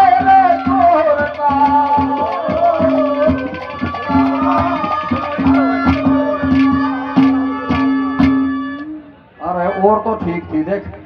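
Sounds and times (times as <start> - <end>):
hand-drum beats: 0.0 - 9.1
held drone note: 1.9 - 9.2.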